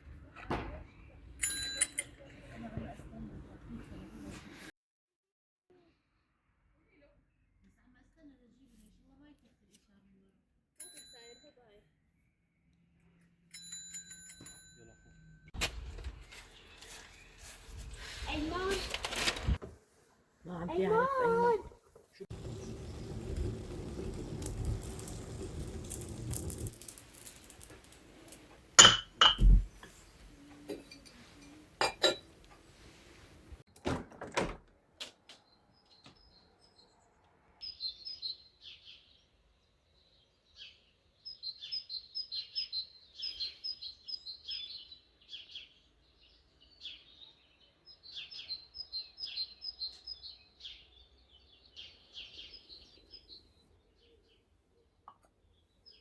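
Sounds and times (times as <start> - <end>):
songbird chirping: 35.3 - 56.0.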